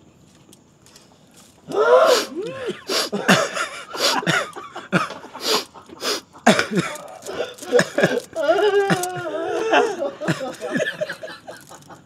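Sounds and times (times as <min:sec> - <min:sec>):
person making loud swooping vocal sounds: 0:01.7 - 0:03.2, 0:05.5 - 0:10.0.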